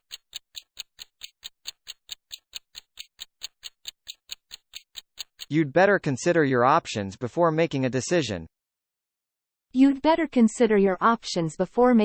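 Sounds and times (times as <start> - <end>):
clock-like ticking: 0.0 - 5.6.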